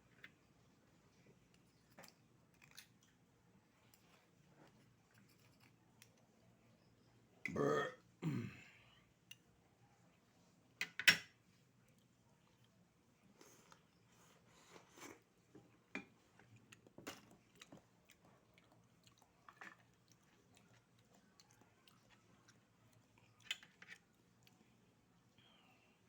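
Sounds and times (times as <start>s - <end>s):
person chewing: 16.4s - 23.6s.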